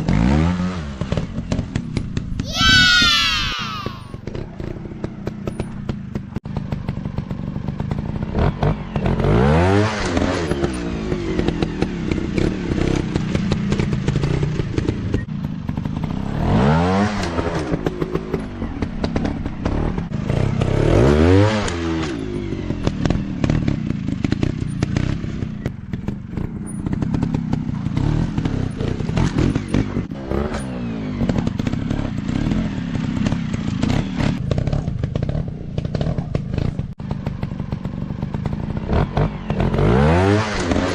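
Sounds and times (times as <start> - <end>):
dirt bike engines revving: 2.4 - 5.8.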